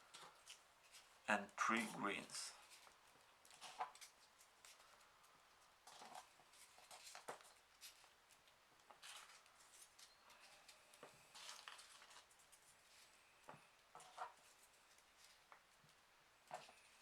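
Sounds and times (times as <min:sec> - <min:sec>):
paper rustling and clicking: 0:02.6 - 0:15.7.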